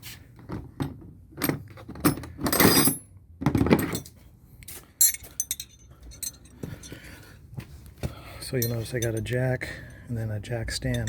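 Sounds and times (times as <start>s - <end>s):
metal hand tools clinking: 5.0s - 7.0s, 8.5s - 10.0s.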